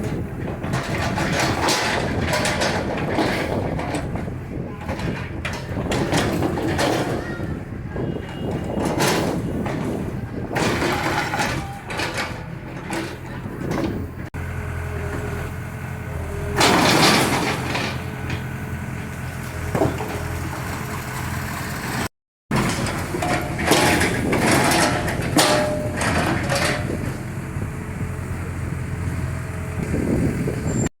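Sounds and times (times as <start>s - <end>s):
diesel engine running: 0.0s - 30.9s
debris crashing and breaking: 8.8s - 14.0s.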